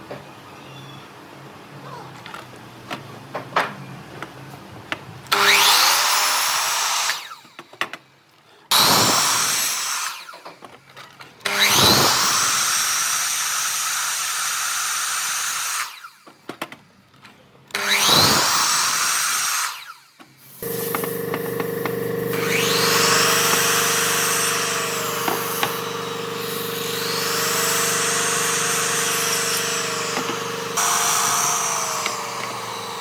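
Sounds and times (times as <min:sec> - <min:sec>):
power tool cutting wood: 0:05.3 - 0:07.4, 0:08.7 - 0:10.4, 0:11.4 - 0:16.1, 0:17.7 - 0:33.0
machine hum with held tone: 0:20.6 - 0:33.0.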